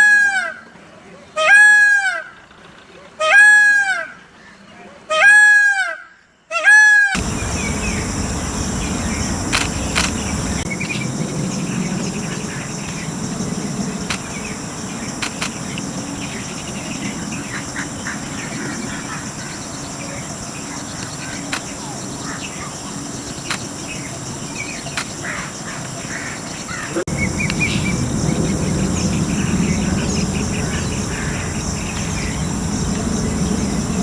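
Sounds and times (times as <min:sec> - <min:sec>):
peacock calling: 0:06.6 - 0:34.0
sharp clicks: 0:07.2 - 0:11.0, 0:14.0 - 0:16.0, 0:21.0 - 0:21.8, 0:23.3 - 0:23.7, 0:24.9 - 0:25.2
high-pitched hum: 0:07.2 - 0:24.7, 0:26.7 - 0:34.0.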